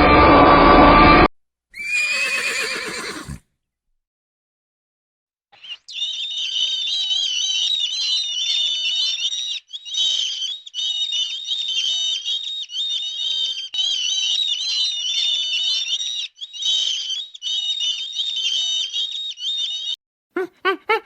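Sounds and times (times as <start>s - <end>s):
birds peeping and chirping: 5.6s - 20.0s.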